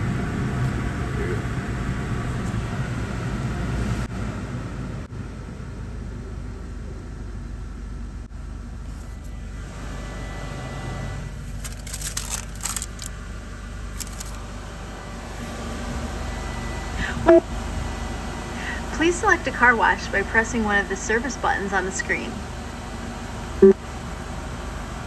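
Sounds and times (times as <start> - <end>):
car engine idling: 11.2 - 25.0.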